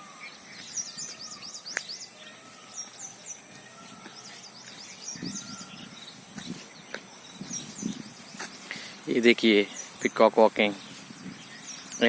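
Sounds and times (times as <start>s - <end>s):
small bird singing: 0.0s - 12.0s.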